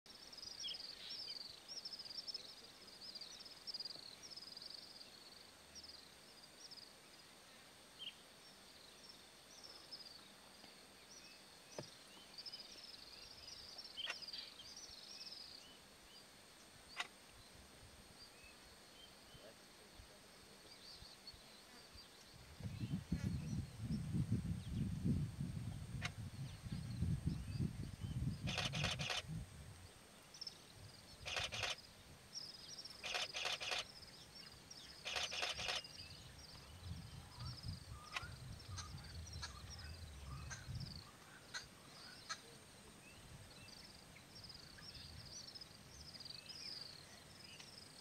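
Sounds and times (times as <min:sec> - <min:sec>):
steady high hiss: 0:00.1 - 0:48.0
faint bird chirps: 0:26.0 - 0:29.2, 0:30.2 - 0:48.0
sharp clicks: 0:28.5 - 0:29.2, 0:31.3 - 0:31.8, 0:33.0 - 0:33.9, 0:35.0 - 0:35.9.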